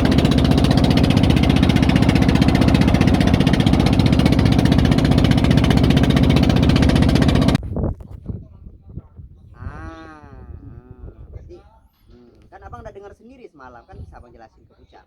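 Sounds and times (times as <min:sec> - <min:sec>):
small boat engine chugging: 0:00.0 - 0:07.6.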